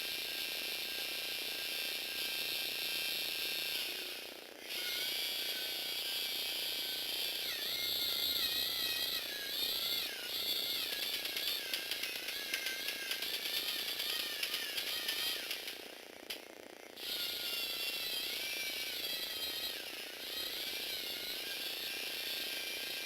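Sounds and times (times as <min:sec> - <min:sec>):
small electric motors whining: 0:00.0 - 0:23.0
gear teeth clicking rapidly: 0:10.4 - 0:16.5.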